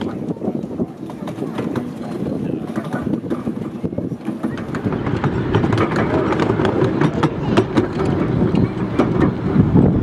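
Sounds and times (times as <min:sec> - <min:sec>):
train wheels rumbling on track: 0:00.0 - 0:10.0.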